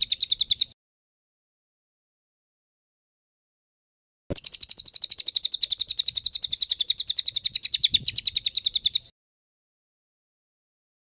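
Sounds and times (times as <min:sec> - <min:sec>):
songbird rapid trill: 0:00.0 - 0:00.8, 0:04.3 - 0:09.1.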